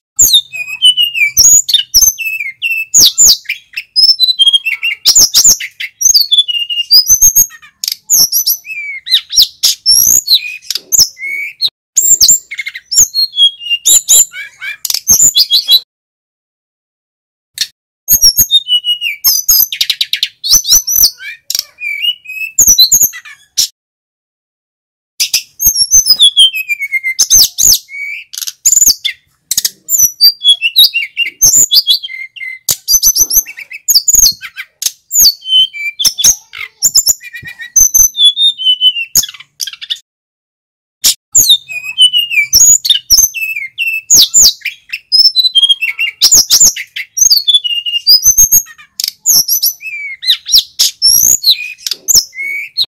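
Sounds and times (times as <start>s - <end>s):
flycatcher singing: 25.2s - 40.0s.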